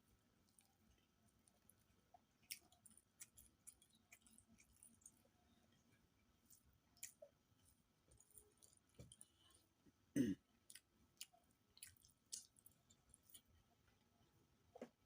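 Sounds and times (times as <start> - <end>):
person chewing food: 0.0 - 9.8, 10.5 - 13.6.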